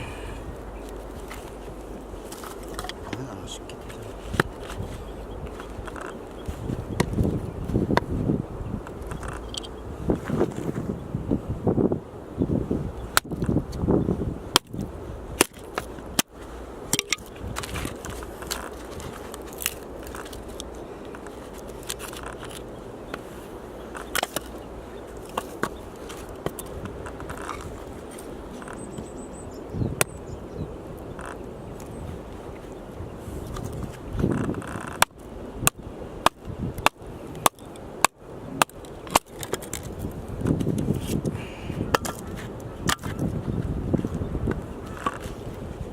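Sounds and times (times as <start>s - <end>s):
axe chopping firewood: 14.5s - 14.8s, 34.8s - 39.6s
axe splitting firewood: 14.5s - 14.8s, 15.4s - 20.5s, 24.0s - 24.5s, 41.9s - 43.3s.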